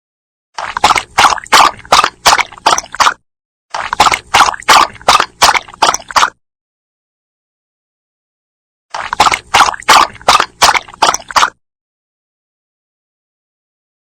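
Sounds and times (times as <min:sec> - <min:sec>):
dog lapping water: 0:00.6 - 0:06.4, 0:08.9 - 0:11.6.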